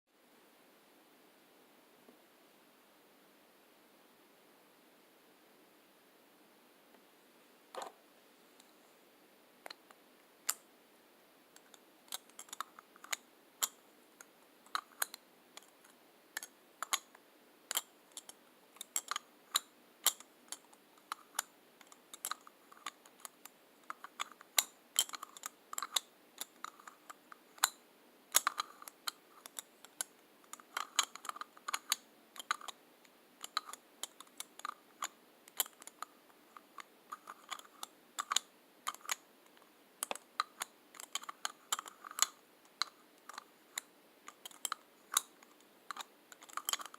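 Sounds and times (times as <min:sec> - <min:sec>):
lipstick tubes clicking and tapping: 0:33.4 - 0:39.2, 0:40.0 - 0:46.9.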